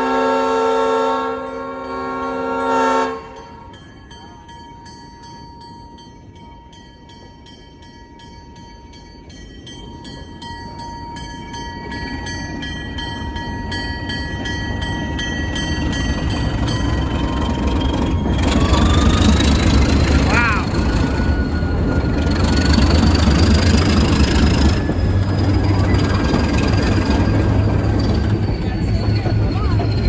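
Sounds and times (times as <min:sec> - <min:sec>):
locomotive air horn: 0:00.0 - 0:03.7
bell ringing: 0:03.4 - 0:30.0
diesel engine rumbling: 0:14.6 - 0:30.0.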